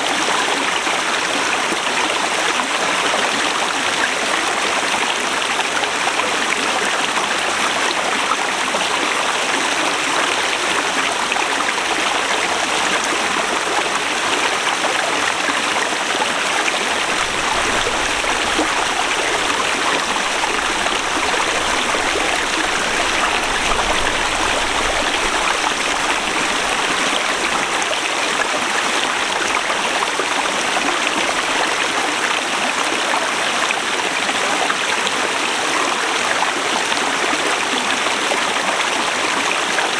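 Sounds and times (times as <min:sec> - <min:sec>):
river flowing: 0:08.3 - 0:33.0.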